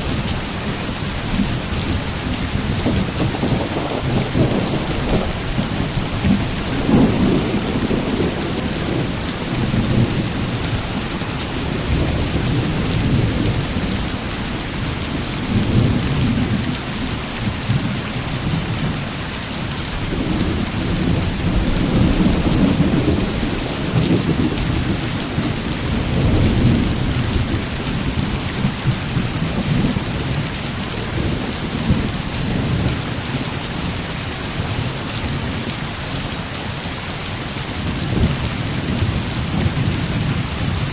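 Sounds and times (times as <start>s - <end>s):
heavy rain falling: 0.0s - 40.9s
low rolling thunder: 0.6s - 17.9s, 20.0s - 33.4s.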